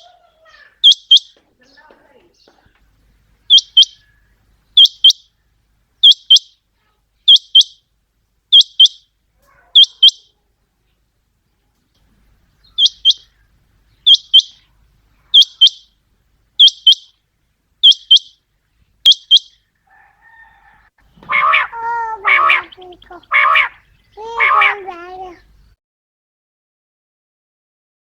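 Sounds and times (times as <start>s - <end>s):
quail calling: 0.0s - 5.2s, 8.5s - 10.4s, 12.6s - 15.9s, 16.6s - 17.1s, 17.8s - 18.4s, 19.1s - 25.4s.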